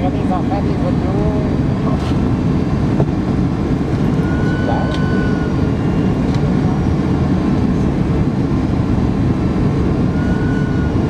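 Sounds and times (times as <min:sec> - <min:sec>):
airplane cabin engine rumble: 0:00.0 - 0:11.0
faint high whine: 0:04.0 - 0:06.8, 0:10.0 - 0:11.0.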